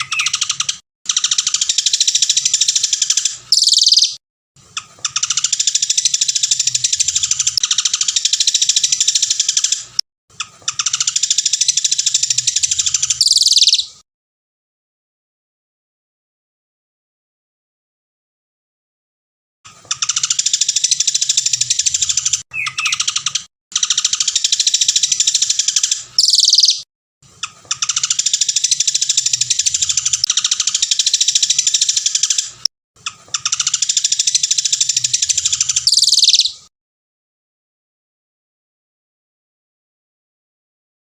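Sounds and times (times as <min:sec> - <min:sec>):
songbird singing rapid trills: 0:00.0 - 0:04.2, 0:10.7 - 0:13.9, 0:20.0 - 0:26.8, 0:33.4 - 0:36.7.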